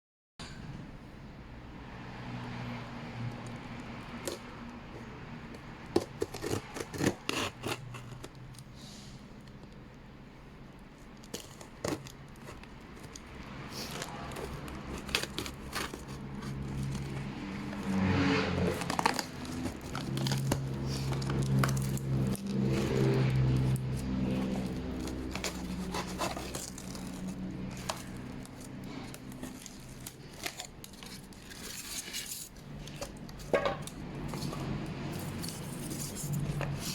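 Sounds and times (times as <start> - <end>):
packaging being opened: 18.6 - 34.6.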